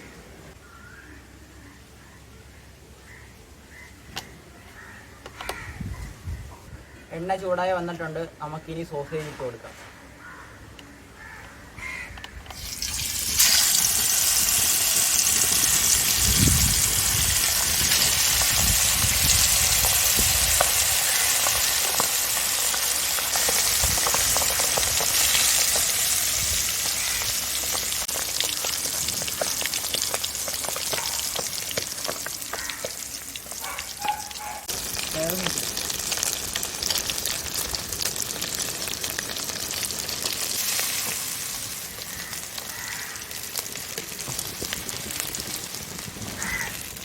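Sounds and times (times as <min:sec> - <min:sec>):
oil crackling: 0:12.5 - 0:47.0
sausages sizzling in hot oil: 0:12.5 - 0:47.0.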